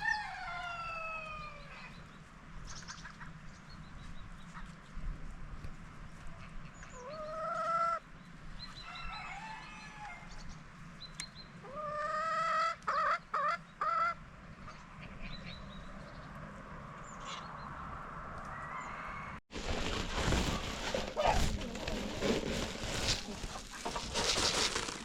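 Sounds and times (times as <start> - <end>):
chickens calling: 6.2 - 16.4, 22.5 - 24.9.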